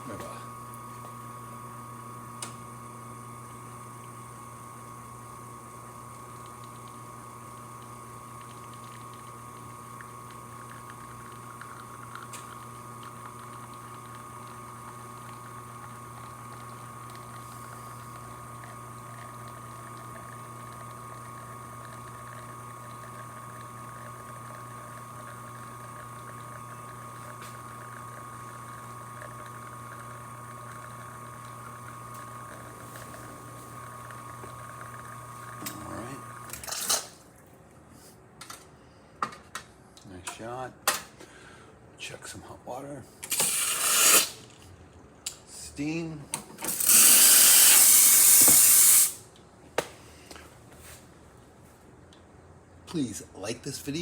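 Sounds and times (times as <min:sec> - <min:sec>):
espresso machine pump humming: 0:00.0 - 0:37.0, 0:43.2 - 0:49.2.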